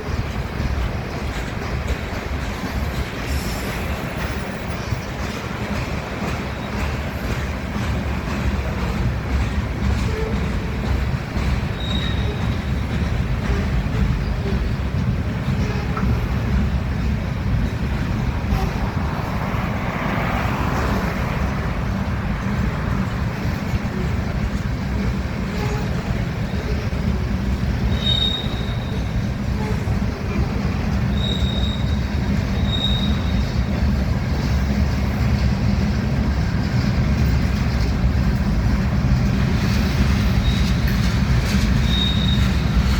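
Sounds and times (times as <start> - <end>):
train wheels rumbling on rails: 0.0 - 42.9
high wheel squeals: 11.4 - 14.8, 25.4 - 33.7, 39.5 - 42.9.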